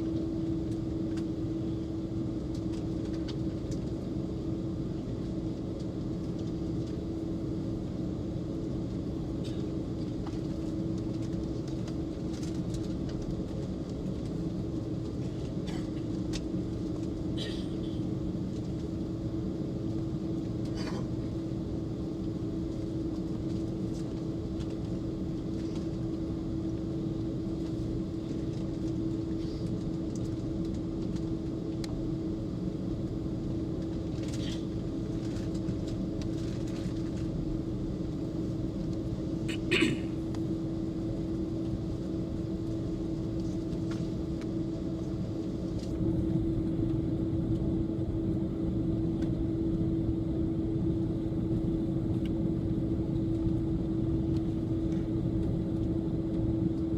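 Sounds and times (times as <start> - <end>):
constant low hum: 0.0 - 56.9
jet engine and airflow rumble: 0.0 - 56.9.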